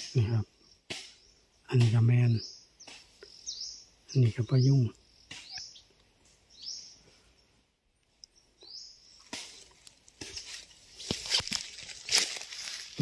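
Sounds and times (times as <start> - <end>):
footsteps through dry leaves: 9.2 - 13.0.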